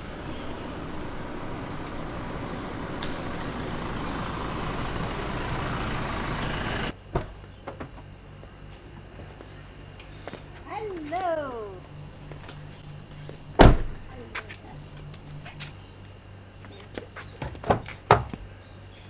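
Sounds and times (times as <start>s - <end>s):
motor vehicle moving: 0.0s - 6.9s, 11.8s - 16.8s.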